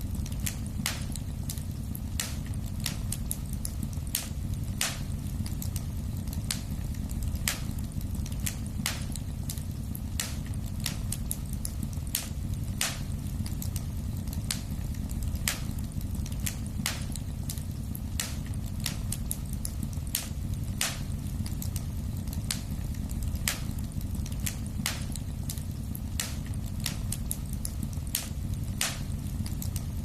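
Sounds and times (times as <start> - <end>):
low rumble of flames: 0.0 - 30.0
wood fire crackling and popping: 0.0 - 30.0.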